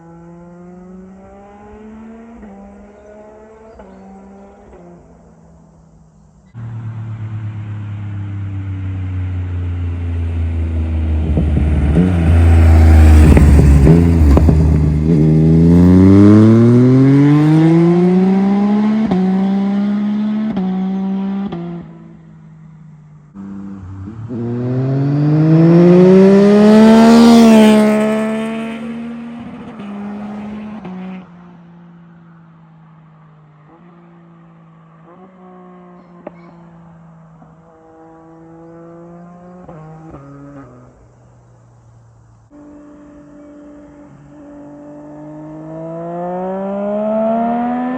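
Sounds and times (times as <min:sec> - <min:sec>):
motorcycle accelerating past: 0:00.0 - 0:05.2, 0:06.5 - 0:22.2, 0:23.3 - 0:32.0, 0:33.2 - 0:41.4, 0:42.7 - 0:47.9.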